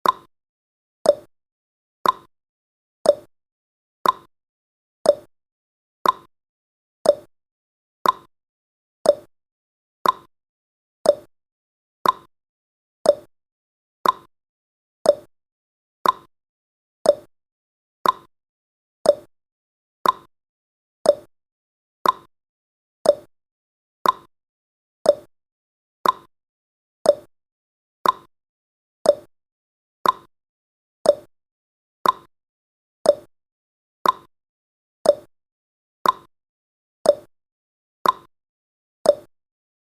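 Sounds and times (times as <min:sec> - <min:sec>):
countdown timer ticking: 0:05.1 - 0:05.3, 0:07.1 - 0:07.3, 0:09.1 - 0:09.3, 0:11.1 - 0:11.3, 0:13.1 - 0:13.3, 0:15.1 - 0:15.3, 0:17.1 - 0:17.3, 0:19.1 - 0:19.3, 0:21.1 - 0:21.3, 0:23.0 - 0:23.3, 0:24.0 - 0:24.3, 0:25.1 - 0:25.3, 0:27.1 - 0:27.3, 0:28.0 - 0:28.3, 0:29.1 - 0:29.3, 0:30.0 - 0:30.3, 0:31.1 - 0:31.3, 0:32.0 - 0:32.3, 0:33.1 - 0:33.3, 0:34.0 - 0:34.3, 0:35.1 - 0:35.3, 0:36.0 - 0:36.3, 0:37.1 - 0:37.3, 0:38.0 - 0:38.3, 0:39.1 - 0:39.3.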